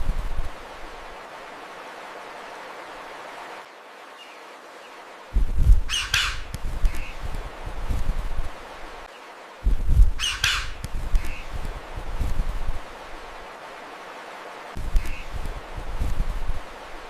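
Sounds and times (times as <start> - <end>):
wind rumble on microphone: 0.0 - 1.7, 5.3 - 13.6, 14.7 - 17.0
steady hiss: 0.0 - 17.0
harsh bird squawk: 5.9 - 7.1, 10.2 - 11.4
faint bird chirps: 5.9 - 7.2, 10.2 - 11.6.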